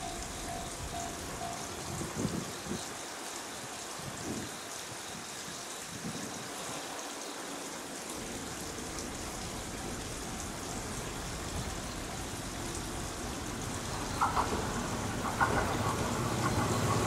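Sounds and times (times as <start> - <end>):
electric train rumble: 0.0 - 3.1, 8.1 - 17.0
steady hiss: 0.0 - 17.0.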